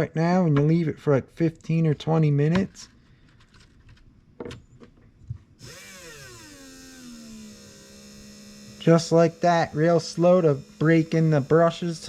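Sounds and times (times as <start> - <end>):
small electric motor humming: 5.6 - 12.0.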